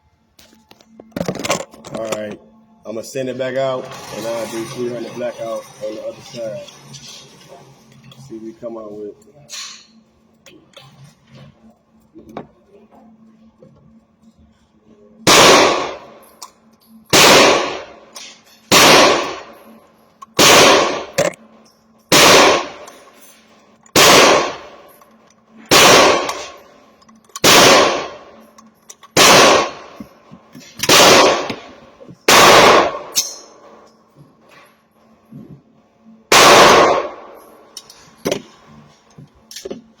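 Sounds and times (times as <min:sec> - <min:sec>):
rifle shots: 0:15.2 - 0:16.2, 0:17.1 - 0:19.6, 0:20.4 - 0:21.3, 0:22.1 - 0:23.0, 0:23.9 - 0:24.9, 0:25.7 - 0:26.6, 0:27.4 - 0:28.4, 0:29.2 - 0:33.5, 0:36.3 - 0:37.4.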